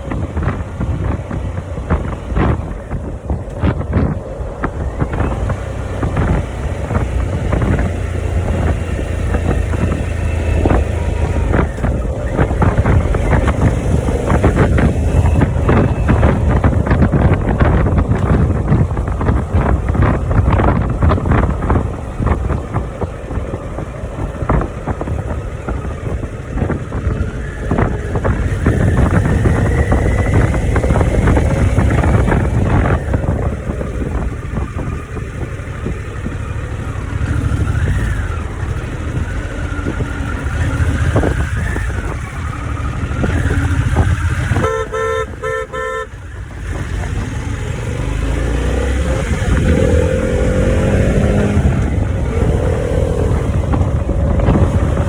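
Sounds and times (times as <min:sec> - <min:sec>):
motorcycle engine running: 0:00.0 - 0:55.0
wind rush on microphone: 0:00.0 - 0:55.0
vehicle horn short beeps: 0:44.5 - 0:46.2.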